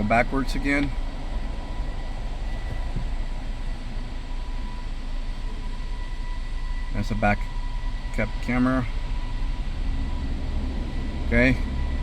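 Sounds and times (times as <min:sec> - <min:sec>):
pickup engine and road rumble: 0:00.0 - 0:12.0.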